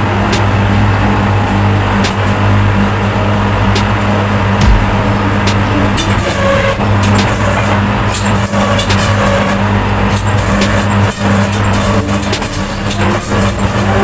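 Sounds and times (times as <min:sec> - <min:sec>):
planer machine humming and clattering: 0:00.0 - 0:14.0.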